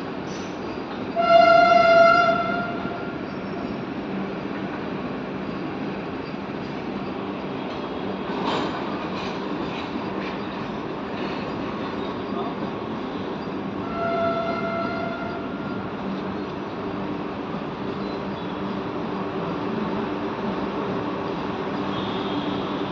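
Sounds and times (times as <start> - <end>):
train rumbling on rails: 0.0 - 22.9
train horn: 1.2 - 3.1, 13.8 - 15.7, 21.9 - 22.9.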